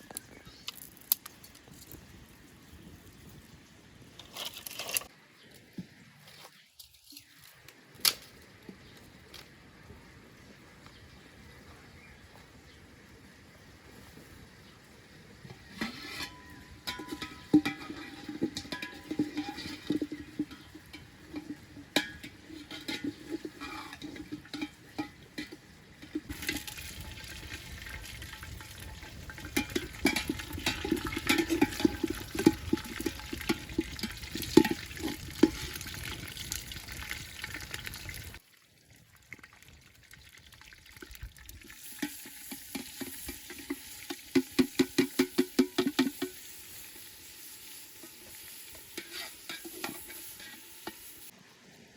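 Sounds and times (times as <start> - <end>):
spatula scraping a pan: 15.6 - 26.9, 42.0 - 51.3
food sizzling in a pan: 41.6 - 51.4.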